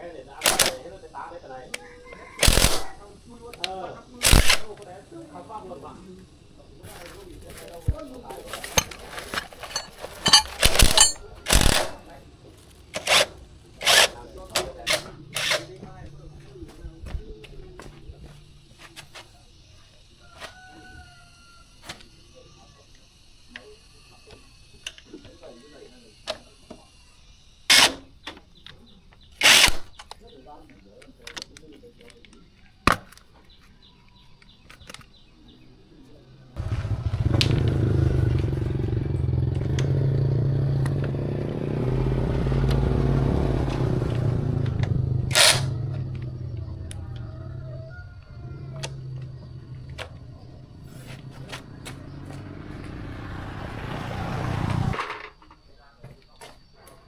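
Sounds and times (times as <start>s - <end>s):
sharp light clicks: 2.4s - 4.9s
motorcycle engine running: 6.7s - 18.4s, 36.6s - 55.0s.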